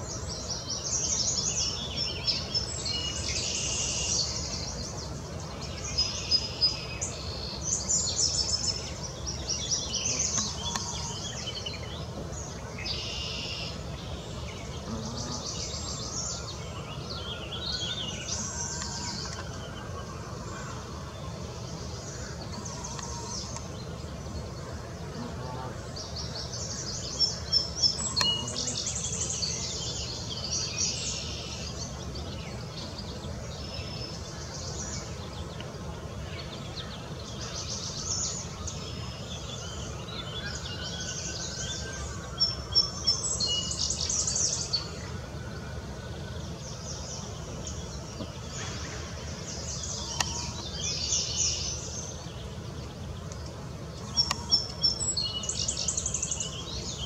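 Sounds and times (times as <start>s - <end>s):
low background noise: 0.0s - 57.0s
small birds chirping: 0.0s - 57.0s.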